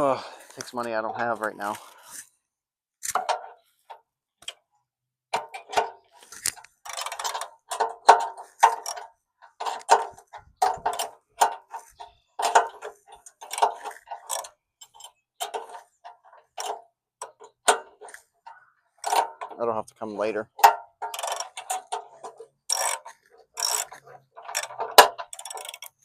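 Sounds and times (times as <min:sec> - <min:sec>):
ratchet wrench clicking: 0:21.1 - 0:21.9, 0:22.7 - 0:26.0.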